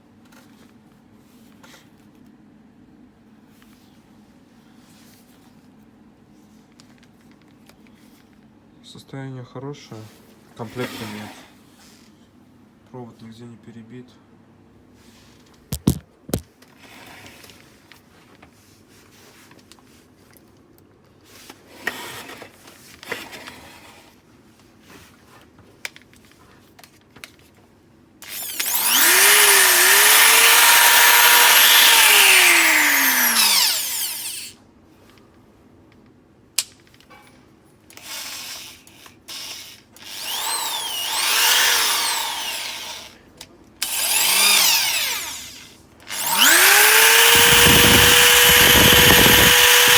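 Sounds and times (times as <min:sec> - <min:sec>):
clicks and handling noise: 0:15.5 - 0:16.7
electric drill motor running: 0:28.2 - 0:34.6, 0:39.3 - 0:43.1, 0:43.8 - 0:49.9.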